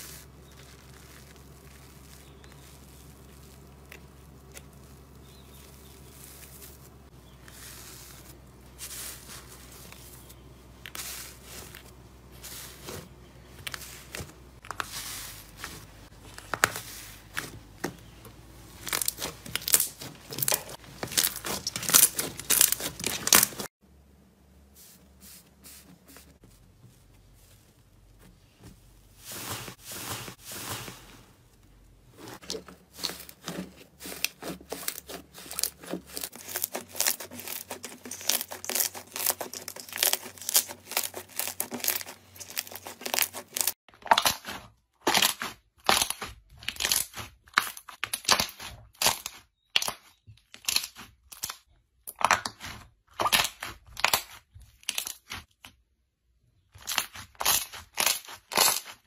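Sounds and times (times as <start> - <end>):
crunchy slime squishes: 0.0 - 23.8, 26.4 - 55.8, 56.6 - 59.0
slime crackling and popping: 18.8 - 23.7, 33.0 - 55.5, 56.9 - 59.0.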